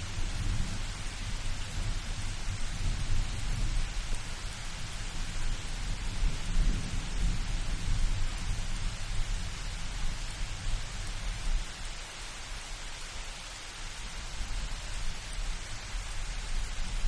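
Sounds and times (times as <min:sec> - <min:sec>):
low thunder rumble: 0:00.0 - 0:09.8
rain hiss: 0:00.0 - 0:17.0.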